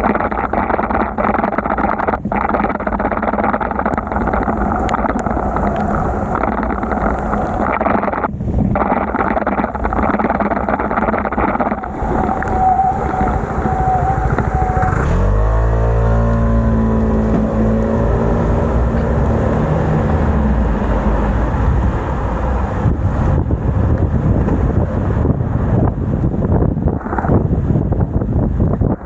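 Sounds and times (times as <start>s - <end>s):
wind and road noise: 0.0s - 29.0s
vehicle engine pulling away: 12.5s - 23.9s.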